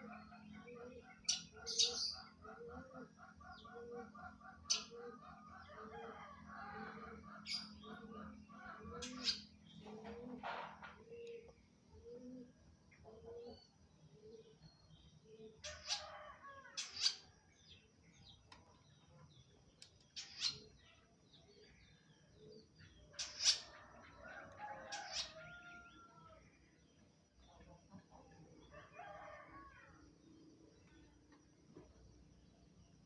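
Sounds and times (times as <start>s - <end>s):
bird chattering song: 0.0s - 2.9s, 8.8s - 10.0s, 20.1s - 20.8s, 22.6s - 23.7s
soft bird twittering: 20.1s - 21.0s.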